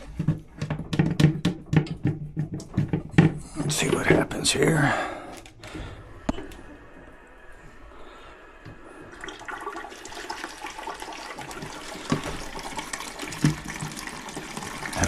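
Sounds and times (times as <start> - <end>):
pipe knock: 0.0 - 3.4
water rushing through valve: 9.0 - 15.0.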